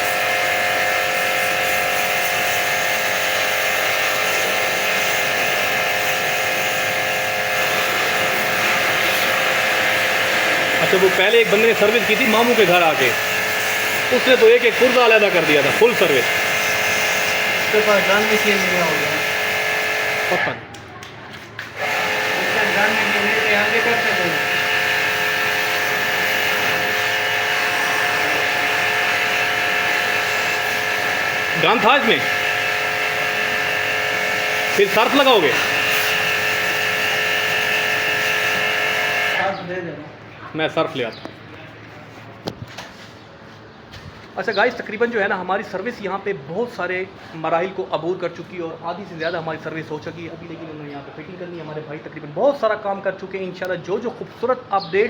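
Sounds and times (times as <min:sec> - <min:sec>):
water spray hissing: 0:00.0 - 0:20.4, 0:21.8 - 0:39.5
pressure washer motor whining: 0:00.0 - 0:20.8, 0:21.6 - 0:39.9.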